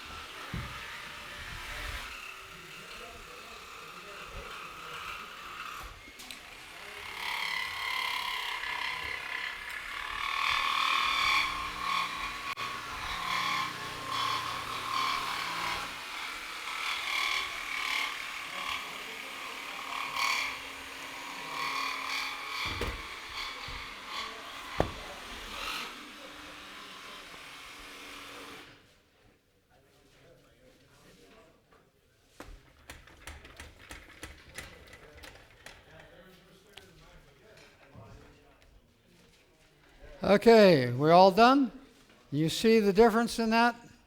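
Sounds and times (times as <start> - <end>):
jigsaws cutting board: 10.6 - 28.7.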